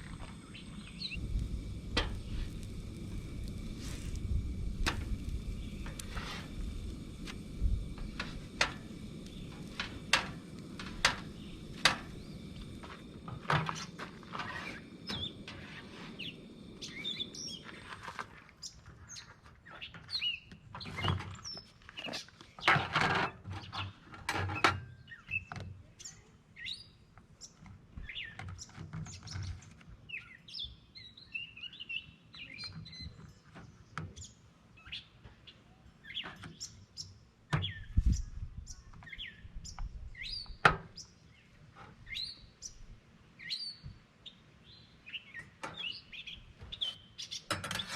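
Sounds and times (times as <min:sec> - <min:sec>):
low rumble: 0:00.0 - 0:17.6
small birds chirping: 0:00.0 - 0:22.8, 0:23.6 - 0:47.9.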